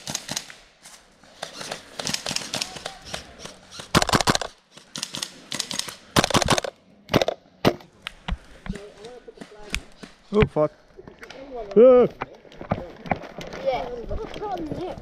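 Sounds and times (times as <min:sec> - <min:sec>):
airsoft guns firing bursts: 0:00.0 - 0:00.6, 0:01.4 - 0:06.7.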